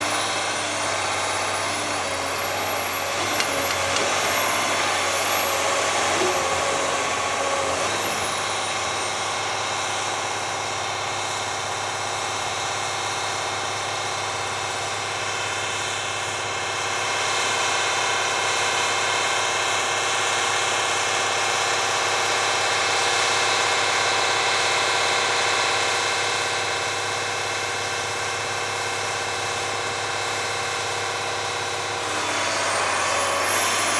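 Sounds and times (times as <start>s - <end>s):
diesel engine running: 0.0s - 11.8s, 31.0s - 33.9s.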